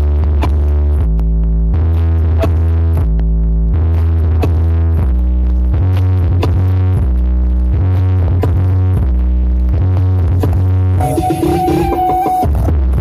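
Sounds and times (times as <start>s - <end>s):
heavy bass line: 0.0s - 13.0s
sharp beat: 11.0s - 12.7s
synthesizer chords: 11.0s - 12.7s
electronic dance music: 11.0s - 12.9s.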